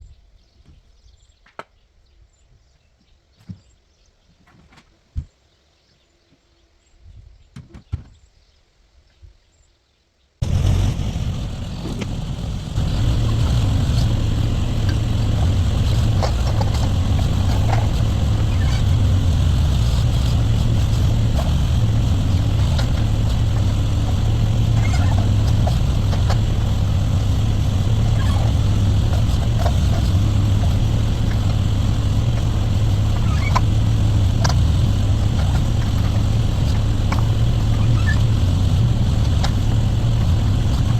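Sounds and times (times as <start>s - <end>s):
backhoe engine running: 10.4s - 40.9s.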